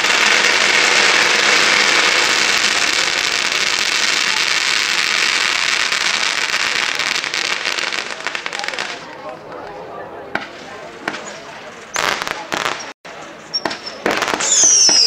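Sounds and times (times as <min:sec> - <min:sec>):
fireworks crackling: 0:00.0 - 0:09.7, 0:10.3 - 0:15.0.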